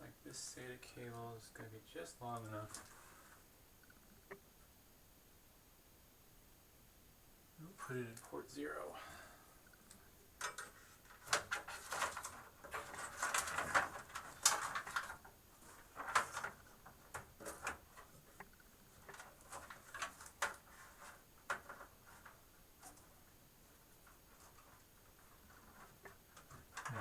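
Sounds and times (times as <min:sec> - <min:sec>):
cable clicks and rustles: 0:02.2 - 0:04.4, 0:09.6 - 0:27.0.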